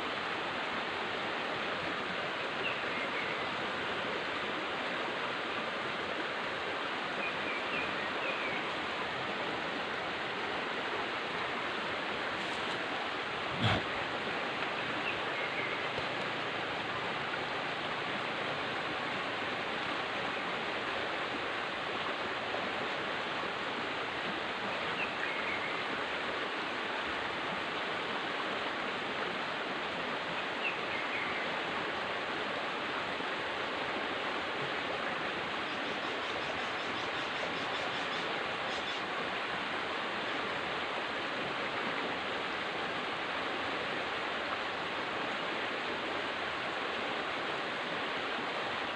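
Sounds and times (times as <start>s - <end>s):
river water flowing: 0.0s - 48.9s.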